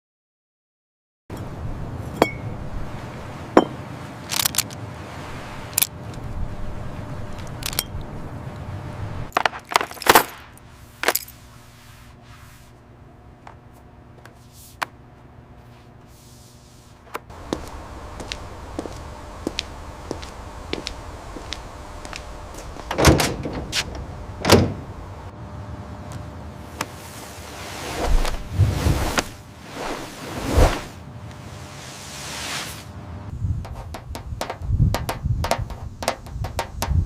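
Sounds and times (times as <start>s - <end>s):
faint steady hum: 1.3s - 37.0s
metal pieces clinking: 9.3s - 11.4s.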